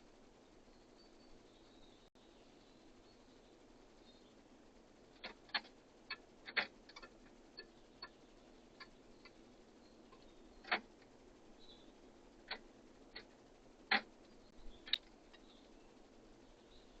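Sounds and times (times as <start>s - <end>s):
birds tapping at a feeder: 5.1s - 16.8s.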